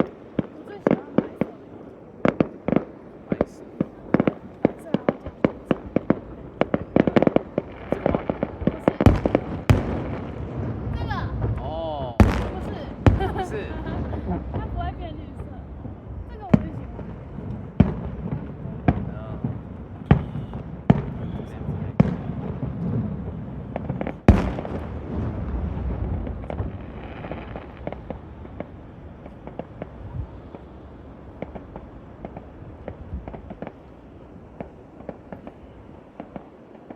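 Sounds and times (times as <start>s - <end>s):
fireworks cracks and pops: 0.0s - 15.5s, 23.7s - 36.9s
loud firework booms: 0.0s - 36.9s
firework shell boom: 24.3s - 28.1s
low rumble: 24.3s - 30.5s.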